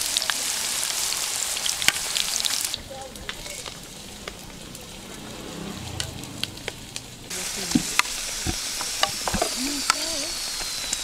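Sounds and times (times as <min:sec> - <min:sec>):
meat sizzling in hot oil: 0:00.0 - 0:05.0, 0:07.3 - 0:11.0
oil popping: 0:00.0 - 0:11.0.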